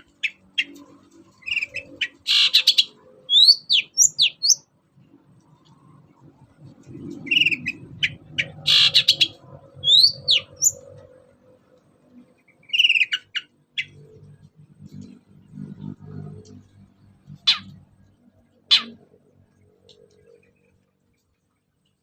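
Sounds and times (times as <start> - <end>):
shrike chirping and whistling: 1.5 - 4.6, 7.3 - 10.8, 12.6 - 14.0, 17.5 - 17.8, 18.7 - 19.0.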